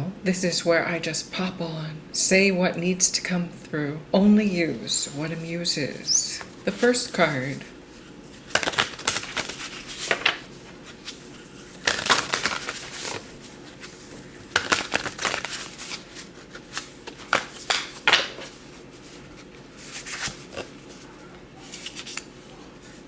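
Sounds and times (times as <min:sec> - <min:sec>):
cards being shuffled: 0:05.9 - 0:23.0.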